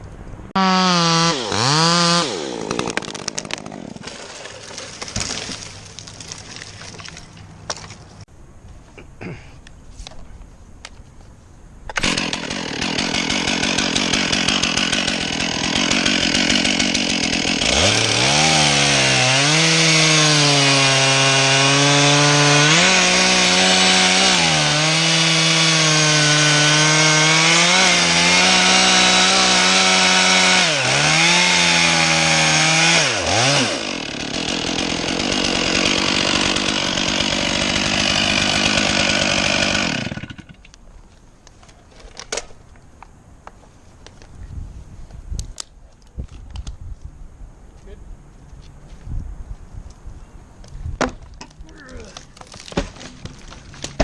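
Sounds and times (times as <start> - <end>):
chainsaw cutting wood: 0.6 - 5.7, 11.9 - 40.7, 52.4 - 54.0.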